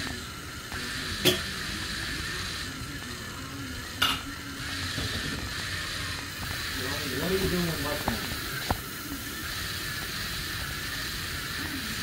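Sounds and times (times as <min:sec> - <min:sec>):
steady hiss: 0:04.6 - 0:12.0.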